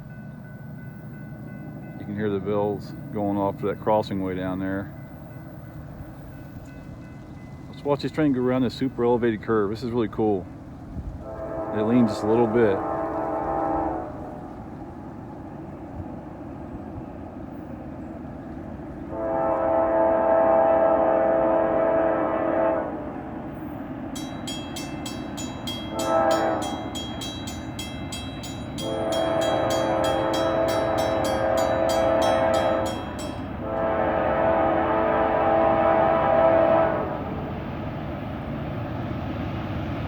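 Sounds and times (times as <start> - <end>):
locomotive air horn blasts: 11.2 - 14.6, 19.1 - 23.0, 25.8 - 27.1, 28.8 - 37.3
bell ringing rapidly: 24.2 - 33.5.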